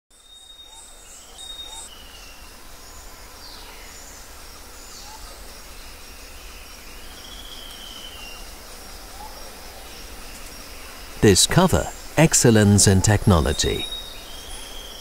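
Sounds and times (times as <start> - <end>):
steady low hiss: 10.0 - 14.5.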